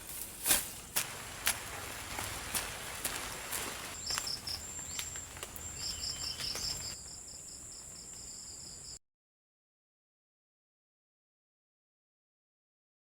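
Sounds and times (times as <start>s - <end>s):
insects chirping: 0.7s - 9.0s.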